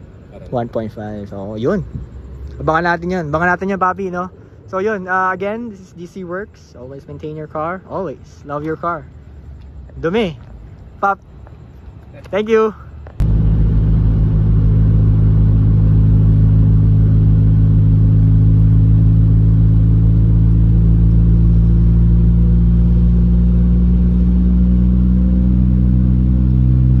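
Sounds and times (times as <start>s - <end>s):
car engine droning: 13.0s - 27.0s.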